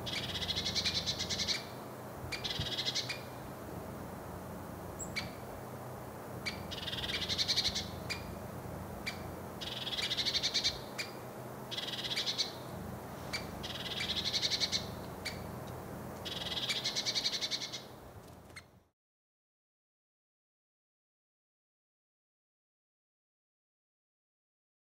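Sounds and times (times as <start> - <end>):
woodpecker warning call: 0.0 - 3.4, 5.0 - 5.5, 6.4 - 8.4, 9.0 - 18.7.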